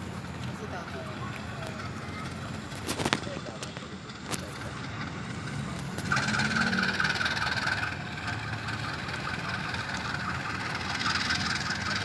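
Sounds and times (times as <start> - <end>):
engine idling: 0.0 - 12.0
pulsing high-pitched whine: 3.7 - 12.0.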